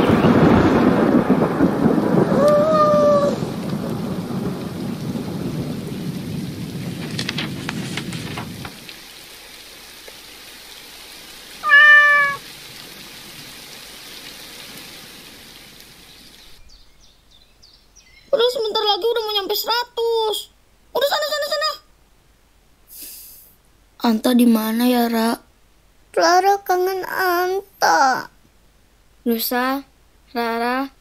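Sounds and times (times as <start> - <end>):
cartoon rain: 0.0 - 16.7, 18.2 - 22.0, 22.8 - 25.5, 26.1 - 28.4, 29.2 - 31.0
cartoon cat meowing: 2.4 - 3.4, 11.6 - 12.4.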